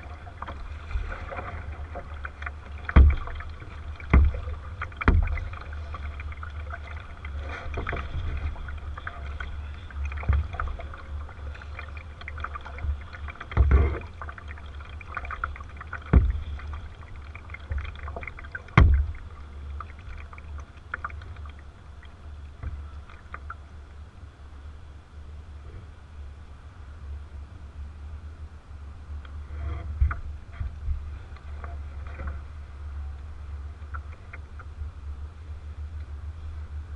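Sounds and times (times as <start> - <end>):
water splashing against hull: 0.0 - 24.4, 29.1 - 36.9
low rumble: 0.0 - 36.9
paddle thumps: 0.4 - 6.1, 16.0 - 16.8, 18.2 - 19.2.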